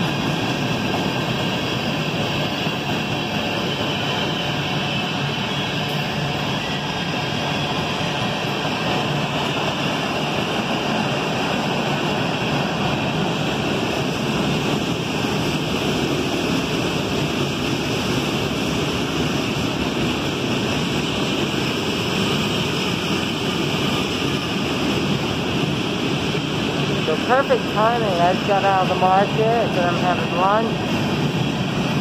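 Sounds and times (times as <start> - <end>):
freight train wheels rushing: 0.0 - 32.0.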